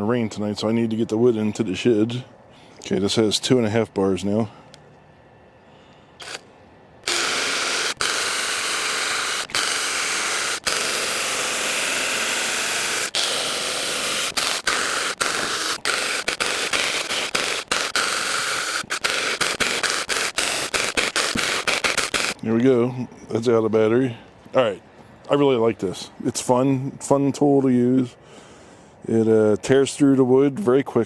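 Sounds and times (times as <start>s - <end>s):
mini chainsaw cutting wood: 6.2s - 6.4s, 7.0s - 22.4s.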